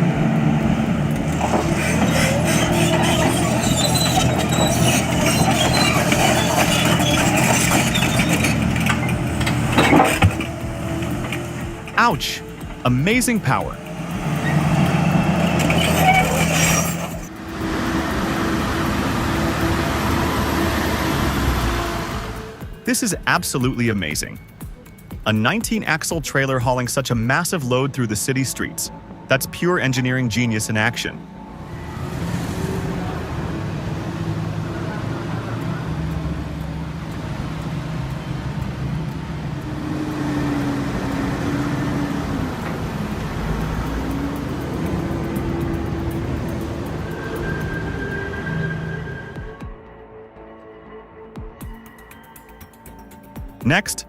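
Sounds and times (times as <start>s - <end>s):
heavy truck engine under load: 0.0s - 23.0s, 31.2s - 49.6s
heavy vehicle engine drone: 0.0s - 50.6s
road noise: 0.0s - 54.0s.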